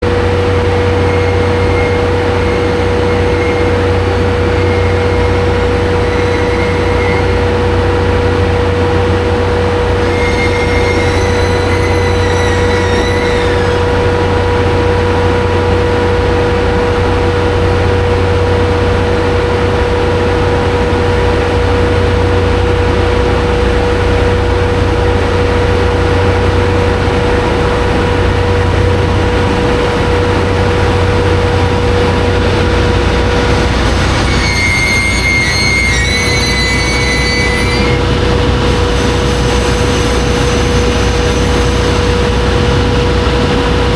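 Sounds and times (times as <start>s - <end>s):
high wavering tone: 0.2s - 8.9s, 10.0s - 14.3s, 31.8s - 39.8s.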